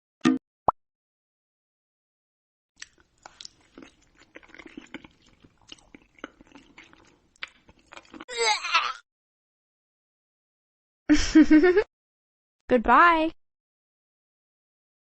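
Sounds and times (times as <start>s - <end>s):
crunchy chewing: 2.8s - 8.3s.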